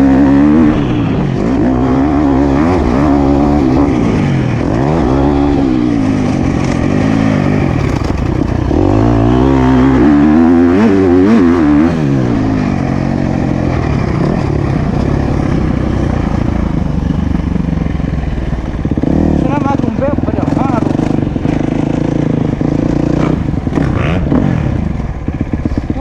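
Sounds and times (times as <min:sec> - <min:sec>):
motocross bike engine revving: 0:00.0 - 0:26.0.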